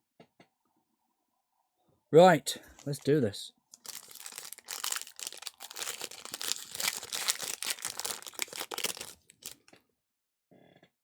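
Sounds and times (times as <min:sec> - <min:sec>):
wrapper tearing and crinkling: 0:03.8 - 0:09.7.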